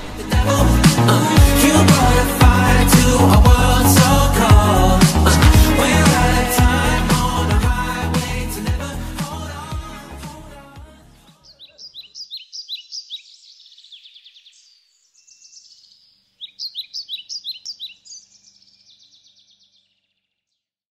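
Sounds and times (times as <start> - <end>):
songbird chirping: 11.2 - 20.7.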